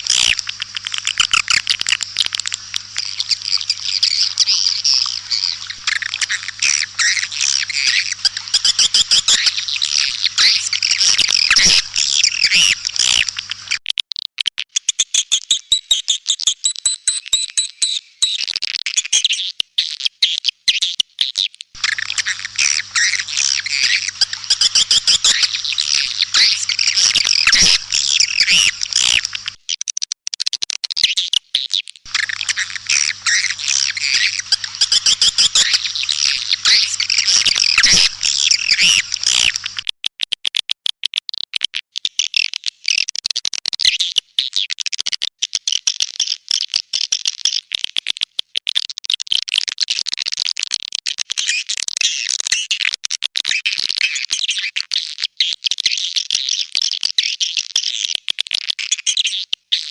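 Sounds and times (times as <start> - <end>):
faint low electrical hum: 0.0 - 13.8, 21.8 - 29.6, 32.1 - 39.8
swiftlets twittering: 0.0 - 13.8, 21.8 - 29.6, 32.1 - 39.8
thin steady whistles: 0.0 - 13.8, 21.8 - 29.6, 32.1 - 39.8.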